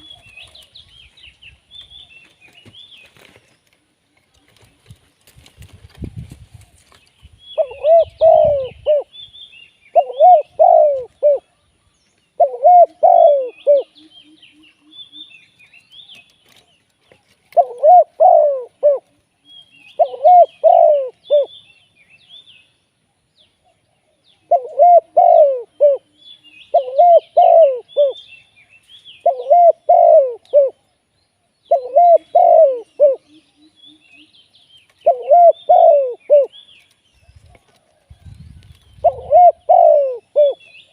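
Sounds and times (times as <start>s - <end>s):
small birds chirping: 0.0s - 40.9s
dove cooing: 7.6s - 9.2s, 9.9s - 11.6s, 12.4s - 15.2s, 17.5s - 19.2s, 19.9s - 21.6s, 24.4s - 28.2s, 29.2s - 30.9s, 31.7s - 34.1s, 35.0s - 36.6s, 37.4s - 40.9s.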